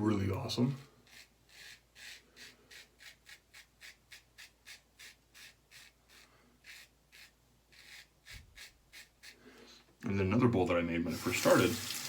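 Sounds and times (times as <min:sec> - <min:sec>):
razor scratching stubble: 0:00.8 - 0:09.4.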